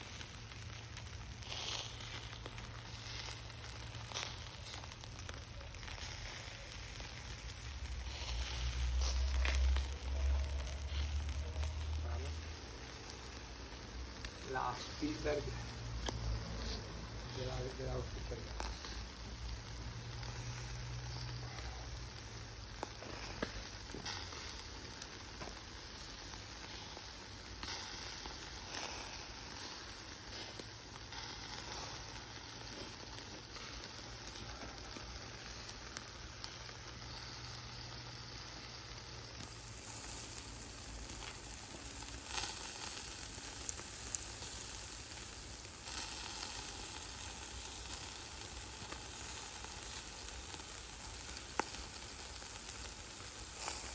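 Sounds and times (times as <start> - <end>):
food frying and sizzling: 0.0 - 53.9.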